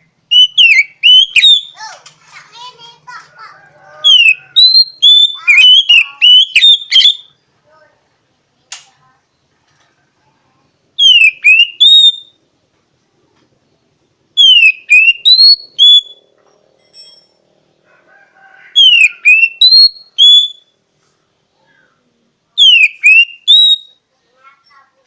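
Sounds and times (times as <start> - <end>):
bird whistling song: 0.3 - 1.8, 4.0 - 7.4, 11.0 - 12.4, 14.4 - 16.3, 18.7 - 20.8, 22.6 - 24.0.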